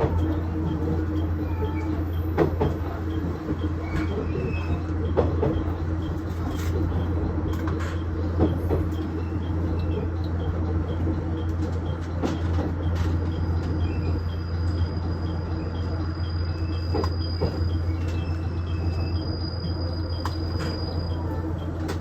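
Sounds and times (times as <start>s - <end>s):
railcar diesel engine humming: 0.0s - 22.0s.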